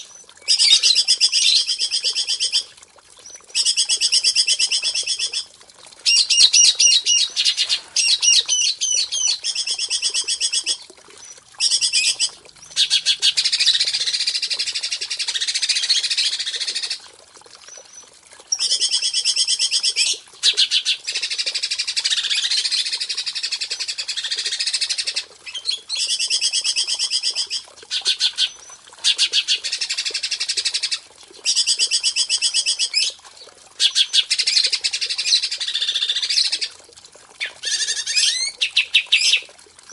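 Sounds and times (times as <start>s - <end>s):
songbird singing: 6.1s - 13.8s.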